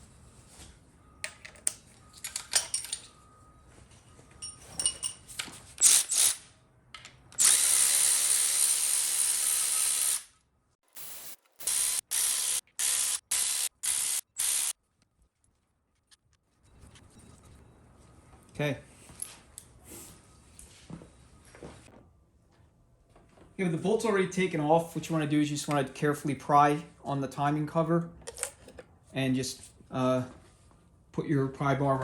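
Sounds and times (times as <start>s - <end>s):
power tool whirring: 7.3s - 10.3s, 11.0s - 14.7s.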